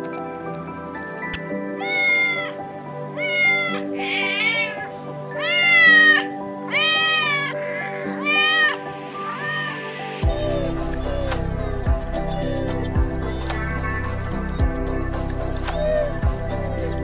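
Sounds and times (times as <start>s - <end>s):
background music: 0.0s - 17.0s
kitten meowing: 1.8s - 2.6s, 3.2s - 10.7s.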